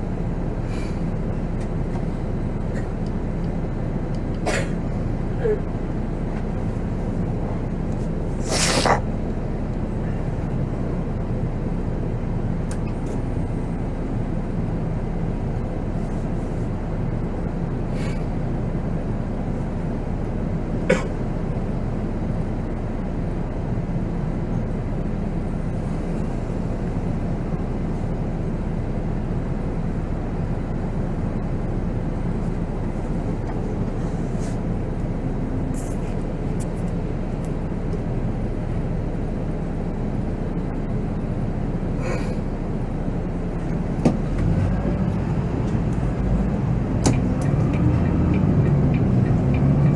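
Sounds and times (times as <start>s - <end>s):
coach diesel engine running: 0.0s - 49.9s
road noise: 0.0s - 49.9s
short sharp hiss: 8.4s - 9.0s.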